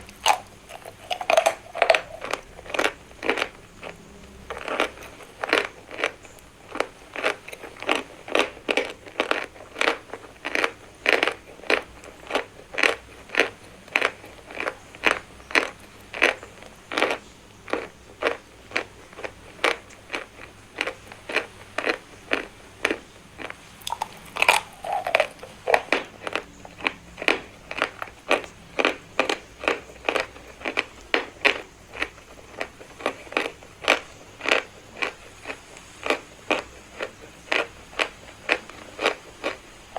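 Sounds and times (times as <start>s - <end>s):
chalk being chewed: 0.0s - 39.9s.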